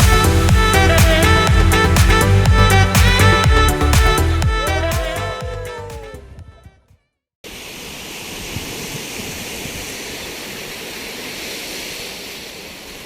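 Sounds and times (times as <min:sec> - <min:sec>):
ocean surf breaking on beach: 0:07.5 - 0:13.0.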